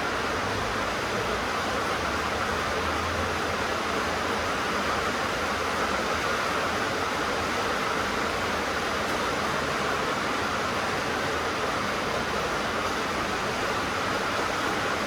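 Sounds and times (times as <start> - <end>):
heavy rain on a tin roof: 0.0 - 15.0.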